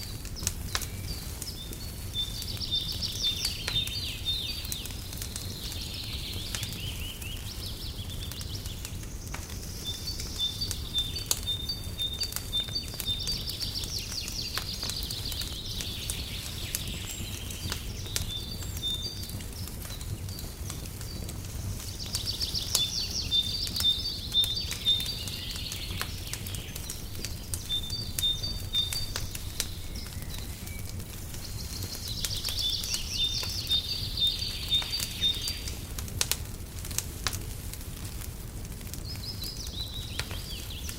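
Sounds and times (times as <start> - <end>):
birds chirping and trilling: 0.0 - 35.8, 39.0 - 40.9
fireplace crackling and popping: 0.0 - 40.9.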